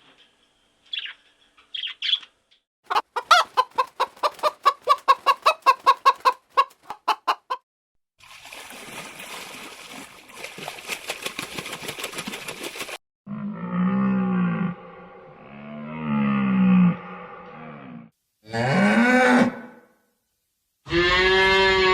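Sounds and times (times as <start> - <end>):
chicken clucking: 2.9 - 7.6.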